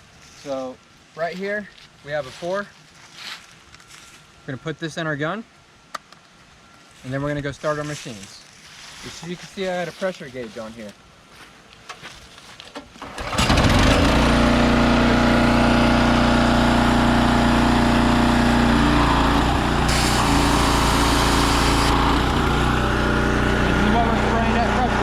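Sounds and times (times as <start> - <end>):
pressure washer engine running: 13.2 - 25.0
water spray hiss: 19.6 - 22.3.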